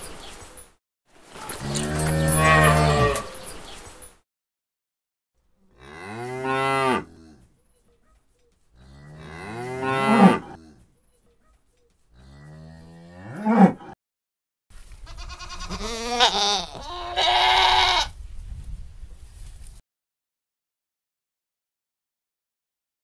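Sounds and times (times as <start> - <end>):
cattle mooing: 1.6 - 3.4, 5.7 - 7.4, 8.8 - 10.8.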